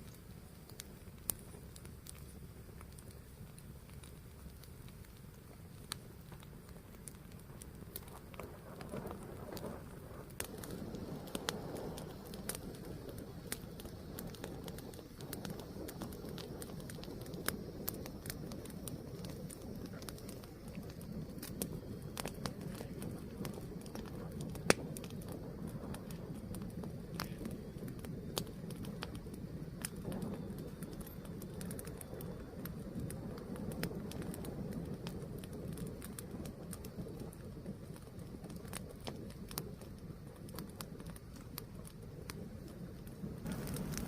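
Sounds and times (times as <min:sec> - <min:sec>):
fire crackling and popping: 0:00.0 - 0:44.0
fire flames rumbling: 0:00.0 - 0:44.0.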